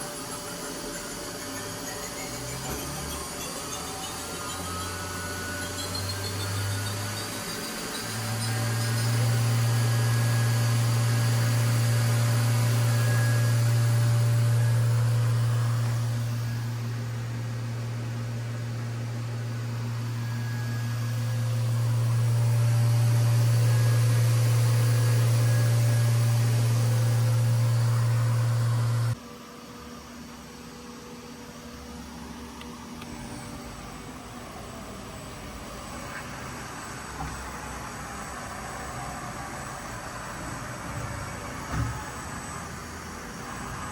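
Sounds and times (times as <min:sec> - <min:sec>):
machine humming with hiss: 0:00.0 - 0:43.9.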